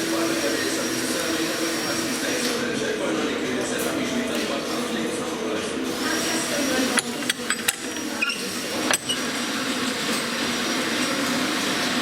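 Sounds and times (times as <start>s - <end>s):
metal parts and tools clicking: 6.8s - 9.3s.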